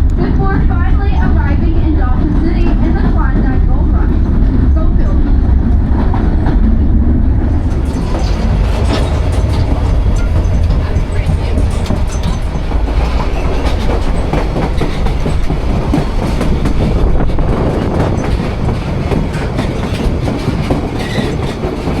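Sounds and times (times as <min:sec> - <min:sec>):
train cars rumbling: 0:00.0 - 0:22.0
wheels clicking over rails: 0:07.4 - 0:22.0.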